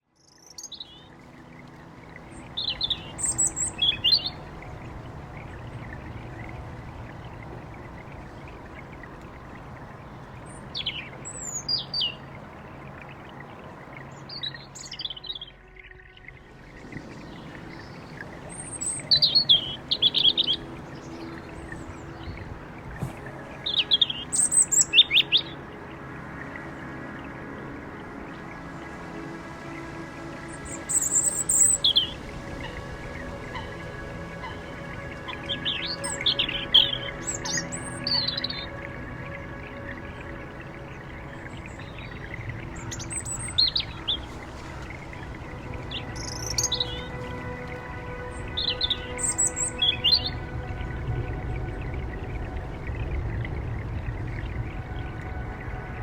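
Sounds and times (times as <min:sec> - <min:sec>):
songbirds chirping: 0:00.0 - 0:56.0
low background rumble: 0:32.1 - 0:56.0.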